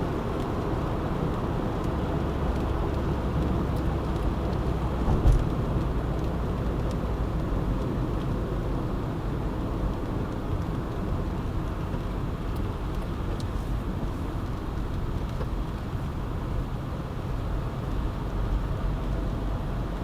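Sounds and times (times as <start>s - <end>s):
car tyres on wet road: 0.0s - 20.0s
low thump: 5.0s - 5.5s.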